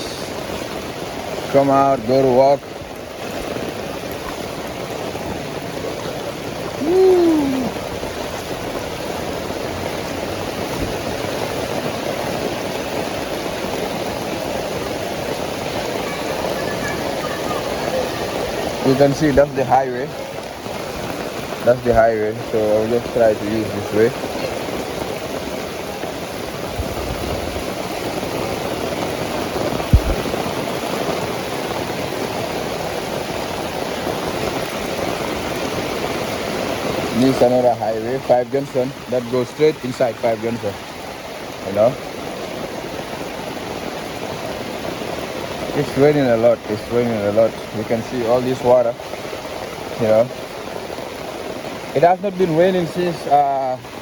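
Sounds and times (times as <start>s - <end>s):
heavy rain on an umbrella: 0.0s - 54.0s
short low thump: 29.9s - 30.4s.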